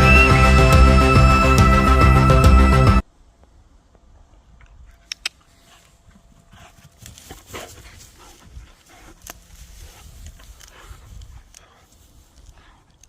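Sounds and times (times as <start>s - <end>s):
dog panting softly: 6.5s - 13.0s.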